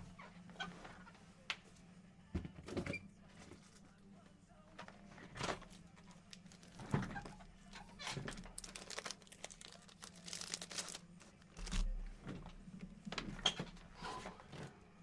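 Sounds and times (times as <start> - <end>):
packaging crinkling and rustling: 6.3 - 6.9, 8.2 - 11.9.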